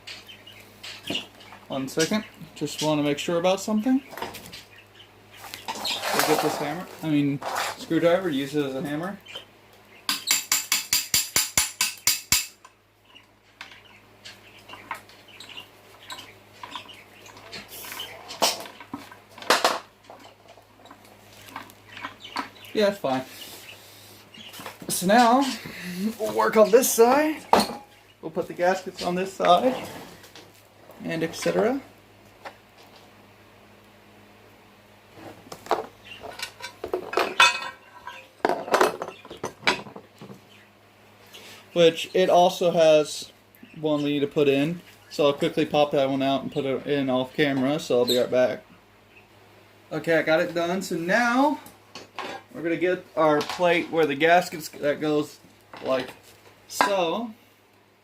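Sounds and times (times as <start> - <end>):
metal tools clinking: 36.4 - 39.0.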